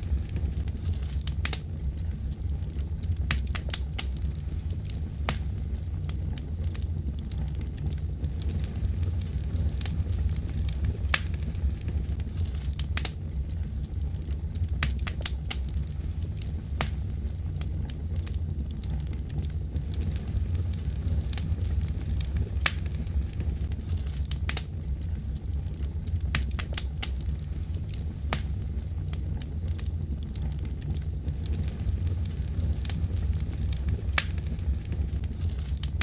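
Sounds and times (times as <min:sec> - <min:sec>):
fire crackling and popping: 0:00.0 - 0:36.0
low rumble: 0:00.0 - 0:36.0.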